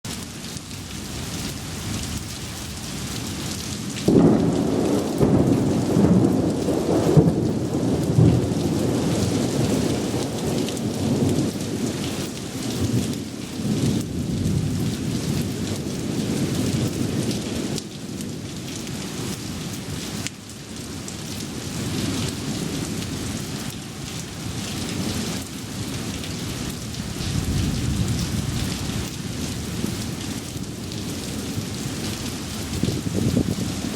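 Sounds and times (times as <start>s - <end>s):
heavy rain falling: 0.0s - 33.9s
thunder rumbling: 4.0s - 18.4s, 26.9s - 32.1s, 32.8s - 33.9s.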